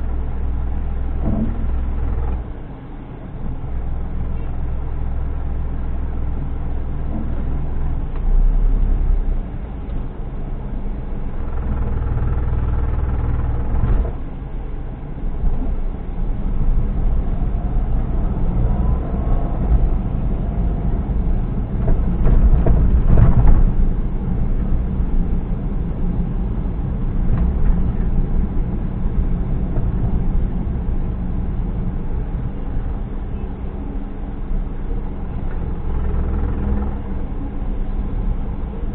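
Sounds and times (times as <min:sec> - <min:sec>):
vehicle engine and road rumble: 0:00.0 - 0:38.9.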